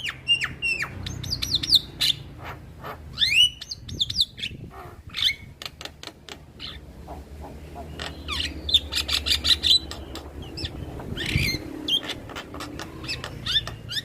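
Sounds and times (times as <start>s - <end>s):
bird whistling and clicking: 8.0s - 14.0s.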